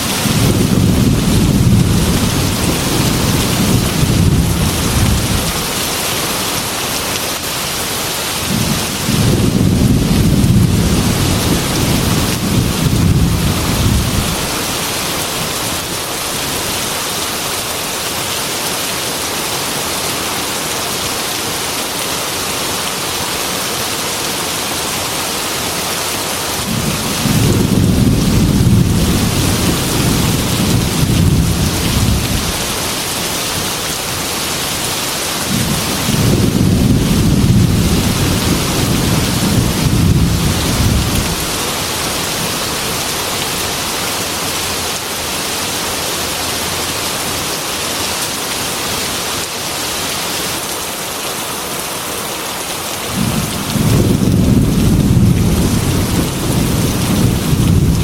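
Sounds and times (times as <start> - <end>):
heavy rain: 0.0 - 58.0
thunder rolling: 0.2 - 5.8, 8.5 - 14.6, 26.6 - 33.8, 35.4 - 41.6, 53.1 - 58.0.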